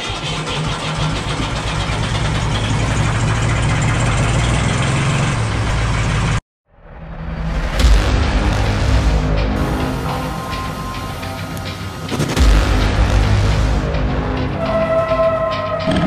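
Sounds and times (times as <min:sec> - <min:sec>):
diesel tractor engine running: 0:00.0 - 0:06.4, 0:07.8 - 0:16.0
music: 0:07.2 - 0:16.0.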